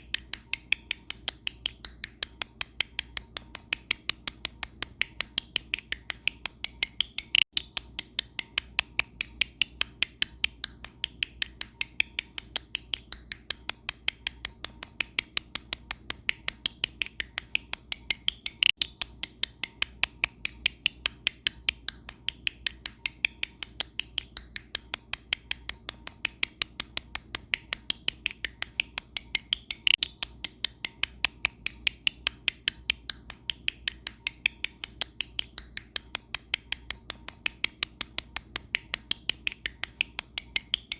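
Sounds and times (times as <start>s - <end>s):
sharp repeating clicks: 0.0s - 40.9s.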